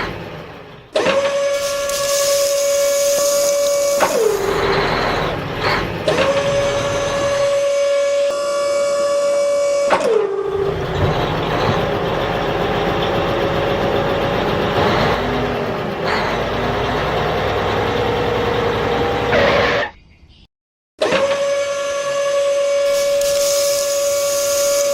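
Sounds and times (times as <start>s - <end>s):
electric motor high whine: 1.3s - 10.8s, 21.2s - 24.9s
rattling and clatter: 10.5s - 16.6s.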